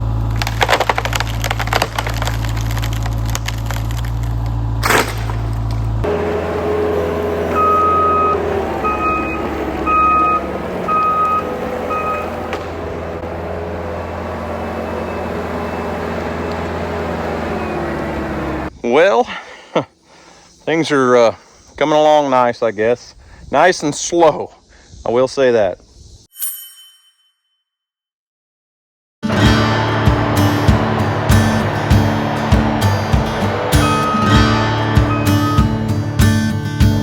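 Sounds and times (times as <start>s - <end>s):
heavy diesel machinery running: 0.0s - 18.7s, 29.3s - 37.0s
sharp cracks and snaps: 0.2s - 5.9s
reversing alarm beeping: 7.4s - 12.5s, 33.8s - 35.8s.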